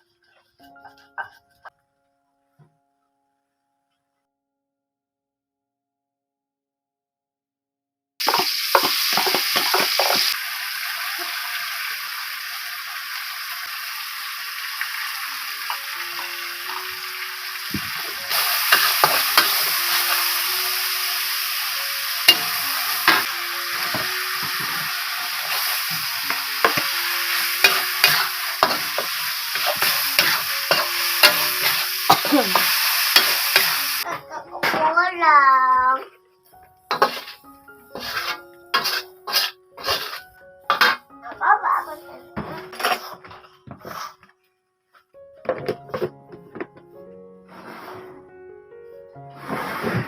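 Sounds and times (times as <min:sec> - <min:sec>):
faint soft music: 0:00.0 - 0:04.2, 0:15.6 - 0:50.0
food sizzling in hot oil: 0:08.2 - 0:34.1, 0:36.9 - 0:41.0
spatula scraping a pan: 0:18.0 - 0:20.9, 0:22.2 - 0:34.0, 0:36.9 - 0:41.1, 0:42.7 - 0:44.2, 0:47.5 - 0:48.2, 0:49.3 - 0:50.0.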